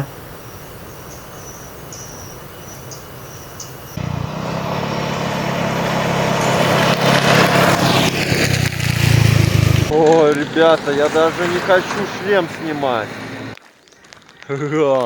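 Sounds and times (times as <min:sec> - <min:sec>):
insects chirping: 0:00.0 - 0:06.8
motorbike engine running: 0:04.0 - 0:10.0
rushing noise: 0:04.0 - 0:13.6.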